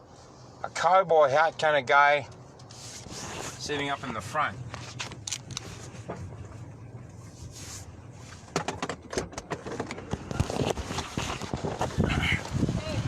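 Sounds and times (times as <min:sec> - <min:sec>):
car cabin road rumble: 0:00.0 - 0:13.0
sharp clicks and knocks: 0:08.5 - 0:11.9.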